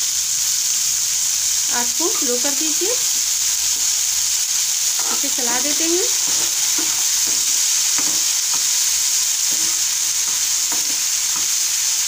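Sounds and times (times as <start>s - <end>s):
peas sizzling in oil: 0.0s - 12.0s
spatula scraping and tapping pan: 4.9s - 12.0s.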